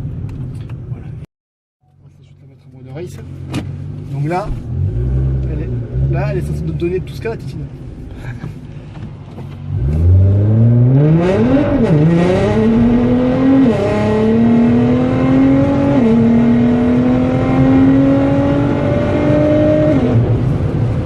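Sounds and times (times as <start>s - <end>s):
car engine accelerating hard: 3.7s - 7.3s, 9.6s - 21.0s.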